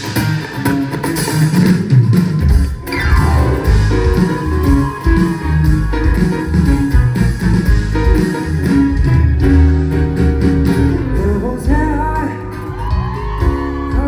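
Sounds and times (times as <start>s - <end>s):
live band music with guitar: 0.0s - 14.0s
man singing: 11.1s - 13.0s, 13.6s - 14.0s.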